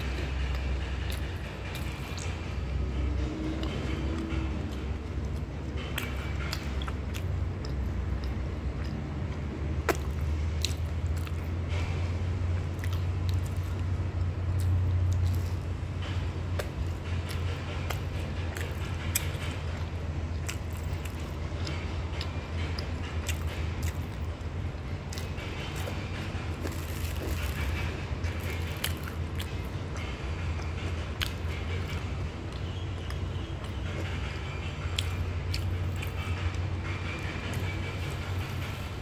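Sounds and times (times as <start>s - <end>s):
steady low hum: 0.0s - 39.0s
person crunching pastry: 26.6s - 29.5s.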